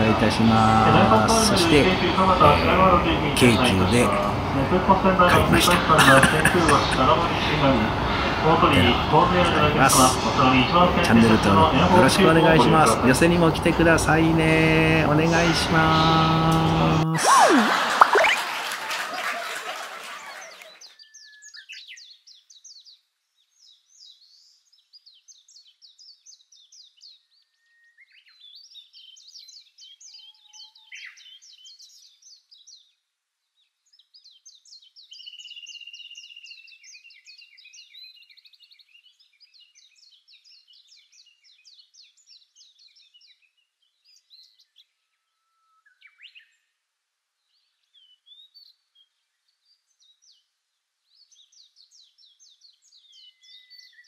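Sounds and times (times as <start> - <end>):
songbird chirps and trills: 20.4 - 54.0.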